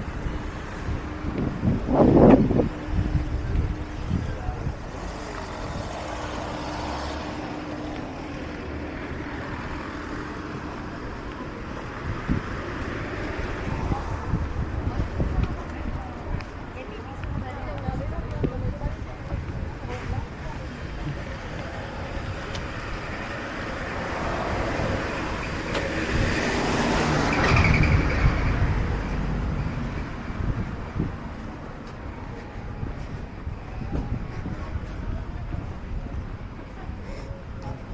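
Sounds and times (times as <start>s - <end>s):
steady engine drone: 0.0s - 16.6s
road vehicle passing: 0.0s - 37.9s.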